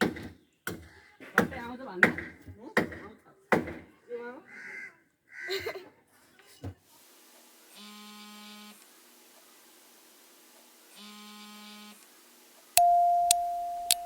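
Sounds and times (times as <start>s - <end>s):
clear electronic note: 12.8s - 14.0s
click: 12.8s - 14.0s.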